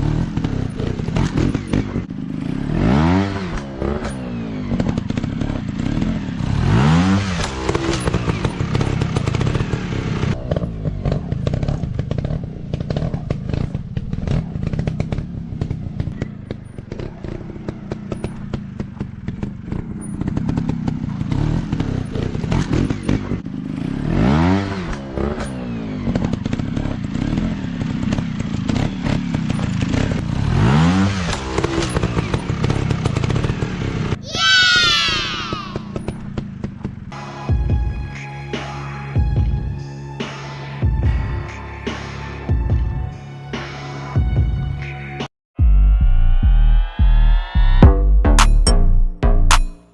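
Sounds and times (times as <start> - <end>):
dirt bike engine revving: 0.0 - 37.1.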